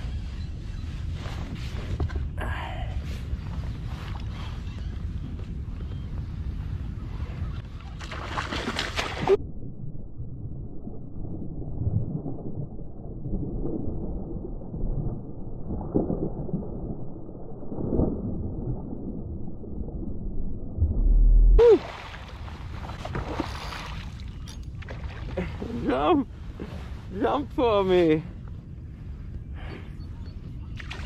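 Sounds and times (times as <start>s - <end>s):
muffled water sloshing: 7.6s - 9.4s, 10.8s - 31.0s
water splashing: 20.9s - 25.6s.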